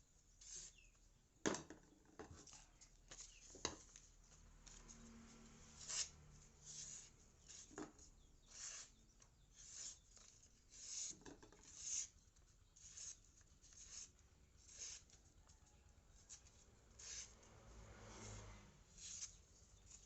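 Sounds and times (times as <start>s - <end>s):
knife blade scraping strokes: 0.4s - 0.9s, 5.6s - 7.7s, 8.4s - 12.2s, 12.8s - 15.2s, 16.2s - 17.5s, 18.1s - 20.0s.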